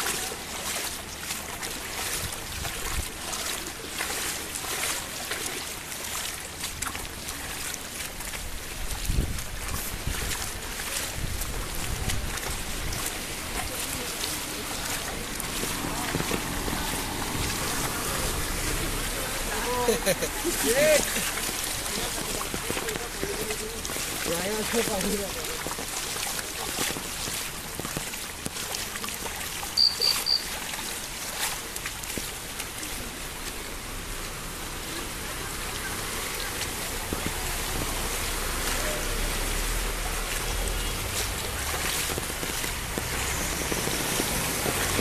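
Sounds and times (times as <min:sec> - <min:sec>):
heavy rain: 0:00.0 - 0:45.0
water rushing across road: 0:00.0 - 0:45.0
wind noise on microphone: 0:08.5 - 0:13.6, 0:39.9 - 0:45.0
short high beeps: 0:29.8 - 0:30.5.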